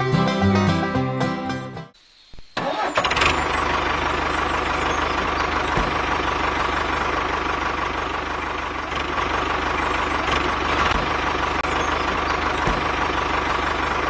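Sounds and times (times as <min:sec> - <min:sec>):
tractor engine chugging: 0:02.6 - 0:14.0.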